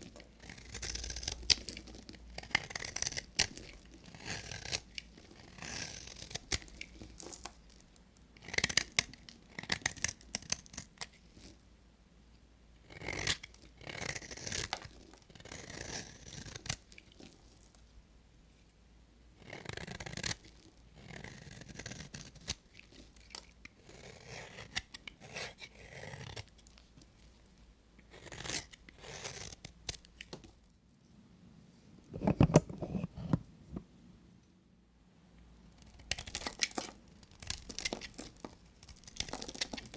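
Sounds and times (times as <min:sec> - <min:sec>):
knife cutting dry soap: 0:00.0 - 0:07.8, 0:08.4 - 0:11.4, 0:12.9 - 0:17.7, 0:19.4 - 0:27.2, 0:28.0 - 0:30.6, 0:35.8 - 0:39.9.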